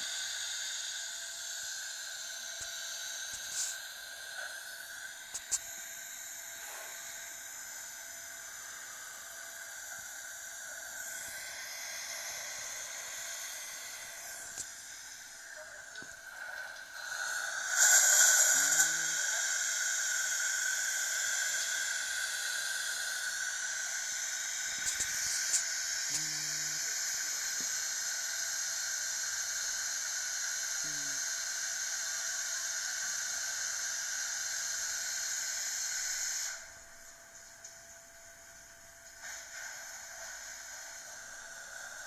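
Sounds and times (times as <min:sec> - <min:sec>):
car wash spray hissing: 0:00.0 - 0:07.8, 0:17.0 - 0:36.8, 0:39.1 - 0:42.0.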